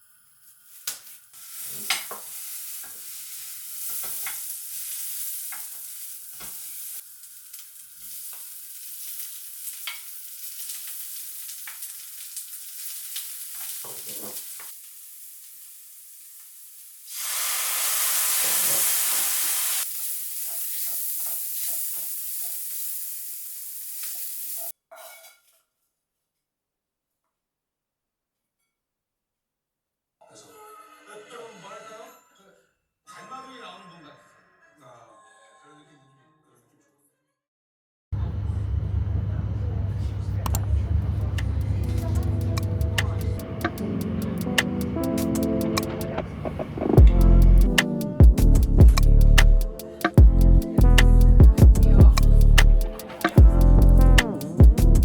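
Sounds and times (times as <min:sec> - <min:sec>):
food sizzling in a pan: 0:00.0 - 0:25.4.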